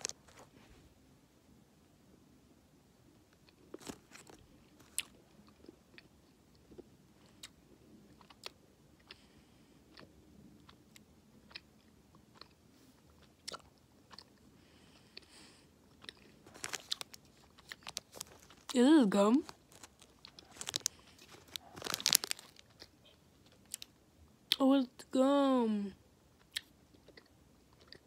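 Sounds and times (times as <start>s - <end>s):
candy chewing crunches: 3.3s - 9.2s, 15.9s - 24.6s, 26.4s - 28.0s.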